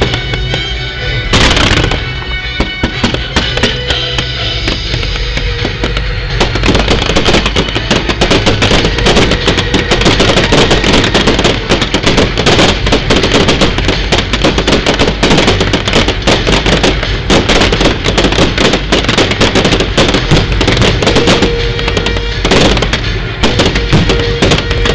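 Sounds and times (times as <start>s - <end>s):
fireworks bangs and crackles: 0.0s - 24.9s.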